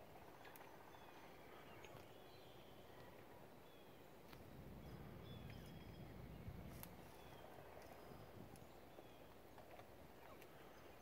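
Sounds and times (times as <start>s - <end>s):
faint songbird chirps: 0.0s - 11.0s.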